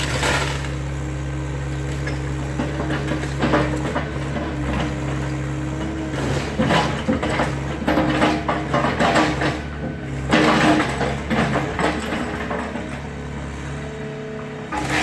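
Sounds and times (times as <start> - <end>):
debris crunching and cracking: 0.0 - 1.0
excavator engine running: 0.0 - 15.0.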